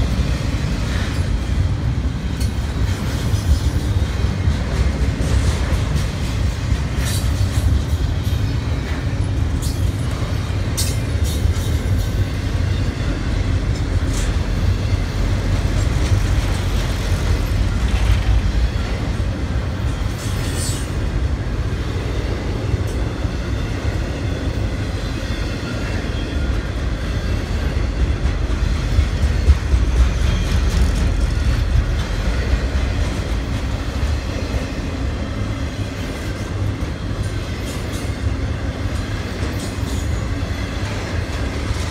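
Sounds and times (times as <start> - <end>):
train wheels rumbling on rail: 0.0 - 41.9
wheels clacking over rail joints: 27.3 - 41.9.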